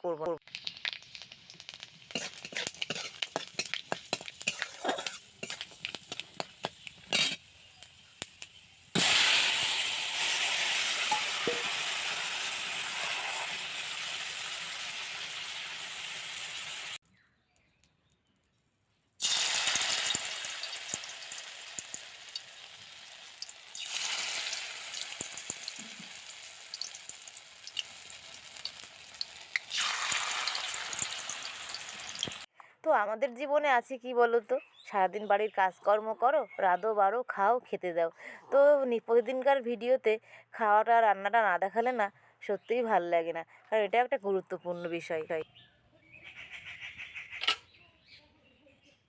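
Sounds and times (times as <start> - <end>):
food sizzling in hot oil: 0.4 - 17.0, 19.2 - 32.5.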